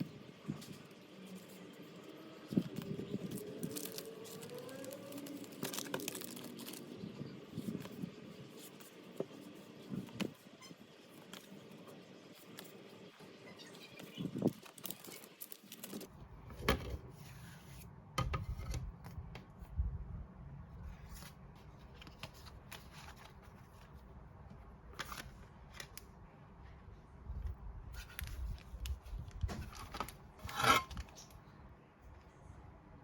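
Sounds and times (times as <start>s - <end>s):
packaging rustling: 0.6s - 10.4s, 13.9s - 16.1s.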